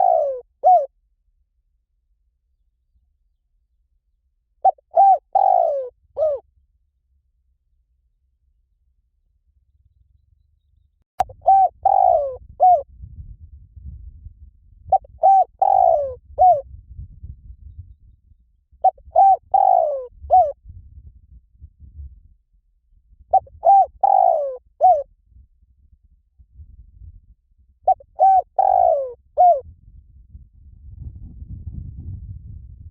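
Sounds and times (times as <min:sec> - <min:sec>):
dove cooing: 0:00.0 - 0:00.9, 0:04.6 - 0:06.4, 0:11.2 - 0:12.9, 0:14.9 - 0:16.6, 0:18.8 - 0:20.6, 0:23.3 - 0:25.0, 0:27.9 - 0:29.6
low rumble: 0:12.4 - 0:15.0, 0:16.6 - 0:18.8, 0:20.5 - 0:23.3, 0:29.6 - 0:32.9.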